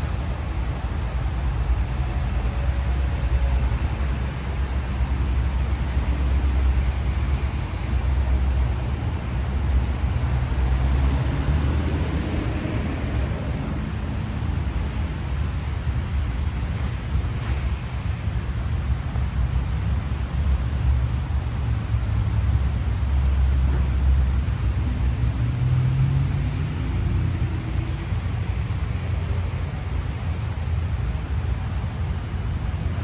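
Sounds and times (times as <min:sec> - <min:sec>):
road traffic rumble: 0:00.0 - 0:33.0
car passing: 0:10.3 - 0:14.3.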